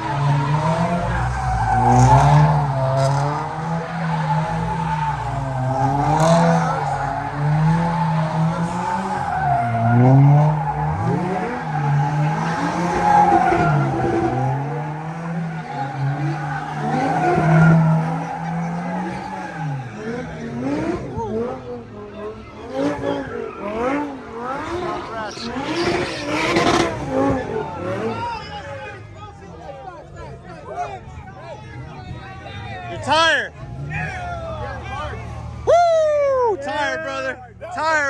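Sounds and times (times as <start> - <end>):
tyres squealing: 0.0 - 20.6
car engine revving hard: 0.0 - 28.6.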